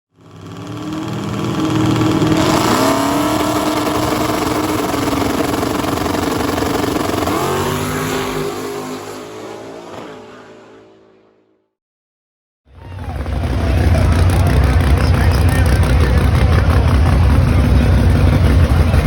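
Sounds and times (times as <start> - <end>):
drag racing engine accelerating: 0.2 - 11.4, 12.9 - 19.0.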